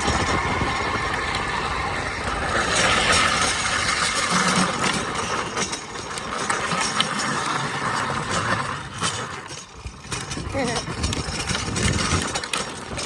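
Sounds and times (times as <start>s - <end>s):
rushing road noise: 0.0s - 9.0s.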